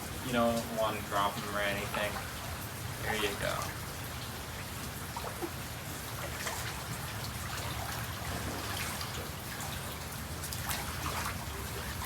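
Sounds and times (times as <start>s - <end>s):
steady rain falling: 0.0s - 5.1s
water trickling and dripping: 0.0s - 12.0s.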